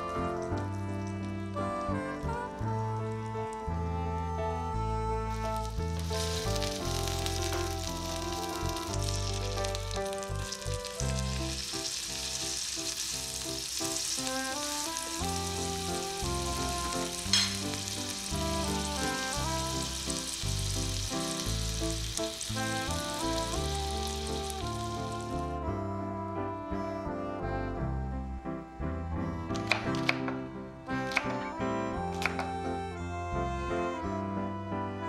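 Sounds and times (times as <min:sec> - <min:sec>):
background music: 0:00.0 - 0:35.0
patty sizzling in oil: 0:05.3 - 0:25.5.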